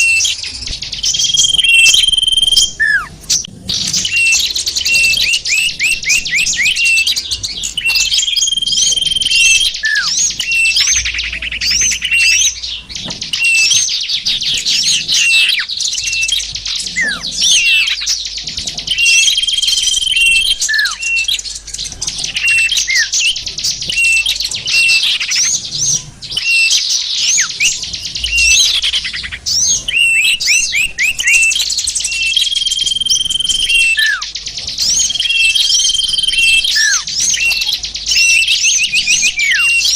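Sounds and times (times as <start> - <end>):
songbirds chirping and trilling: 0.0 - 39.9
high held whistle: 1.2 - 3.1, 8.3 - 10.8, 29.9 - 34.2.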